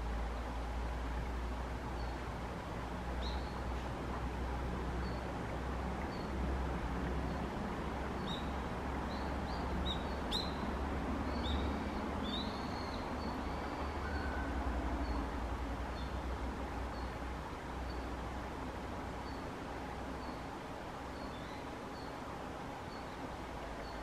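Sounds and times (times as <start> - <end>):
small birds chirping: 3.2 - 3.8, 7.2 - 14.4, 19.1 - 24.0.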